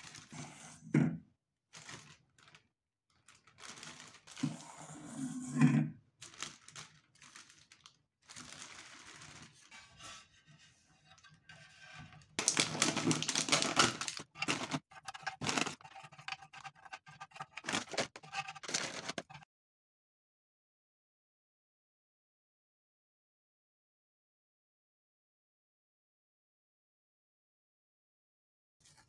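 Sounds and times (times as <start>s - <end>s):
crinkly plastic packet handled: 0.0s - 0.3s, 1.7s - 4.6s, 6.2s - 10.1s, 12.4s - 19.4s
plastic bag rustling: 1.7s - 4.7s, 6.2s - 10.4s, 12.4s - 19.4s.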